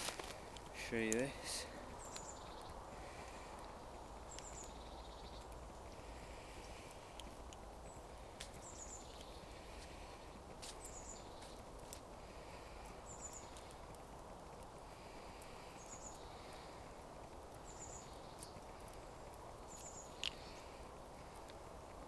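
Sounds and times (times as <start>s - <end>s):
light clicks: 19.7s - 20.5s.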